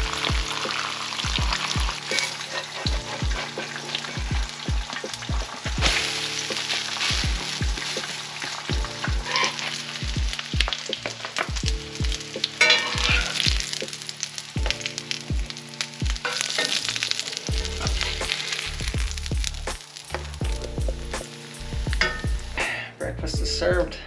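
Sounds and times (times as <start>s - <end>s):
background music with low beat: 0.0s - 16.7s, 17.4s - 24.0s
food sizzling in skillets: 0.0s - 20.6s, 21.2s - 22.7s
metal spatula scraping a pan: 0.5s - 10.0s, 12.5s - 13.7s.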